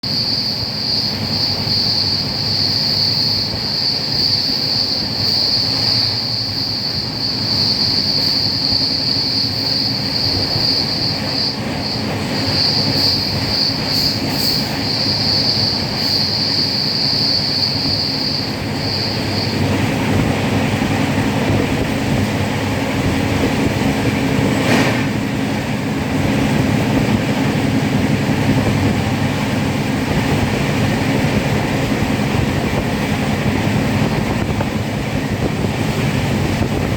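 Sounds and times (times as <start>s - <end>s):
high-pitched wheel whine: 0.0s - 21.2s
train running on rails: 0.0s - 36.9s.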